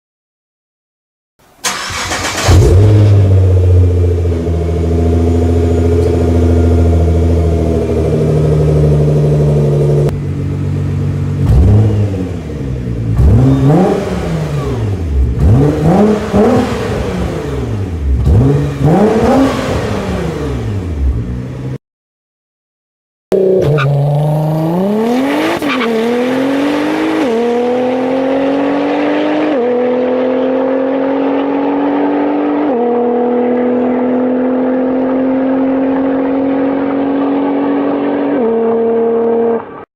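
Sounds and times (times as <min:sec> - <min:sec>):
car engine idling and revving: 0:01.6 - 0:21.8, 0:23.3 - 0:39.8.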